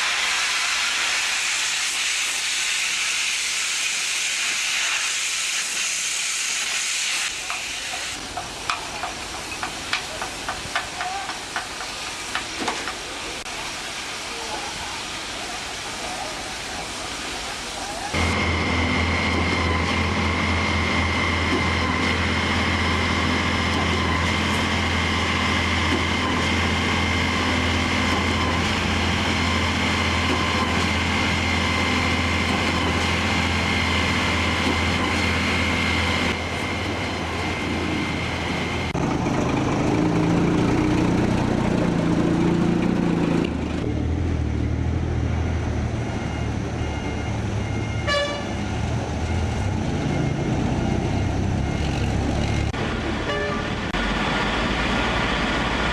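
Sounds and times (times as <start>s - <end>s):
high whine: 18.2s - 55.9s
large engine running: 18.2s - 55.9s.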